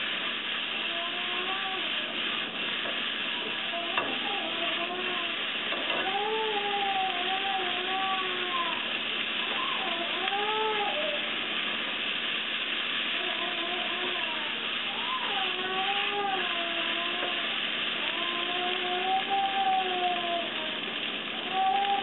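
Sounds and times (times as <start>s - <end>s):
food sizzling in a frying pan: 0.0s - 22.0s
high voice: 0.8s - 2.3s, 3.4s - 11.4s, 13.1s - 22.0s.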